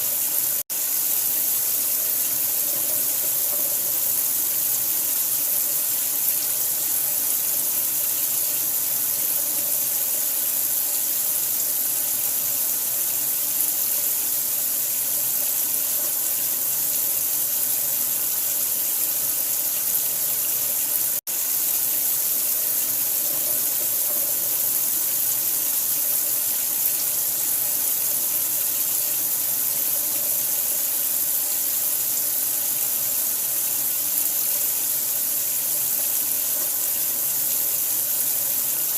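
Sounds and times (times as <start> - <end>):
running water hiss: 0.0 - 38.9.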